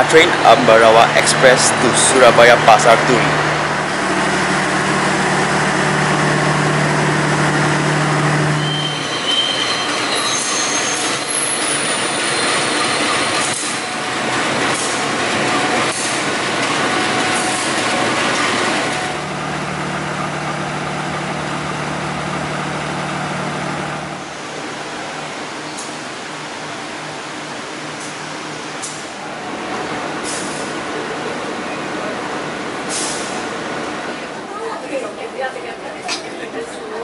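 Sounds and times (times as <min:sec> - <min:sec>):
locomotive engine hum: 0:00.0 - 0:36.9
high wheel squeals on rails: 0:08.0 - 0:16.3.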